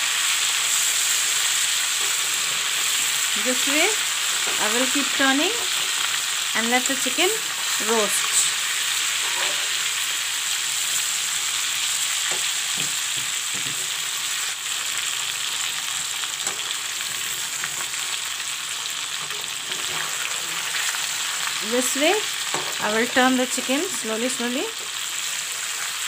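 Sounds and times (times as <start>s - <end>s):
chicken sizzling in hot oil: 0.0s - 26.0s
metal spatula scraping pan: 9.0s - 10.0s, 19.2s - 21.1s.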